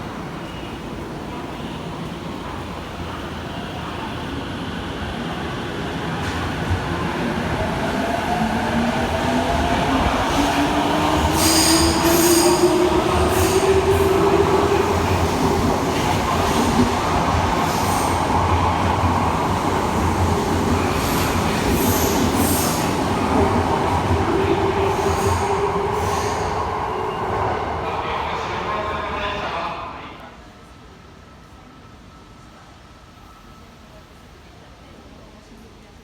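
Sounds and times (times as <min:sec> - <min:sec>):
train rolling rumble: 0:01.2 - 0:29.6.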